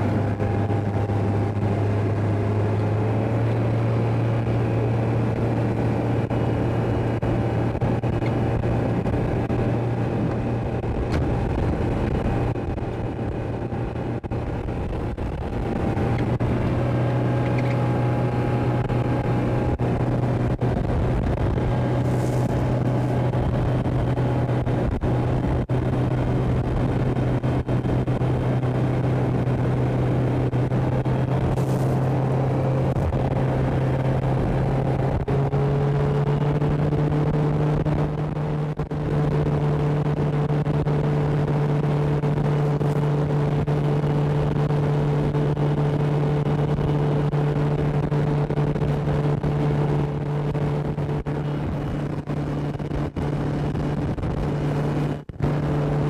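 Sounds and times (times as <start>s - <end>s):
motorboat engine running: 0.0s - 56.0s
steady rushing noise: 0.0s - 56.0s.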